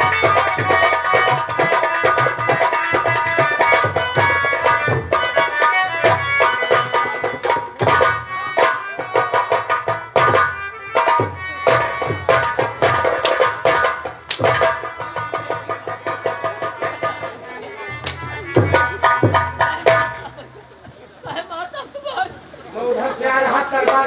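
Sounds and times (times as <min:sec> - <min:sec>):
hand drum strokes: 0:00.0 - 0:23.0
sustained melody instrument: 0:11.6 - 0:24.0.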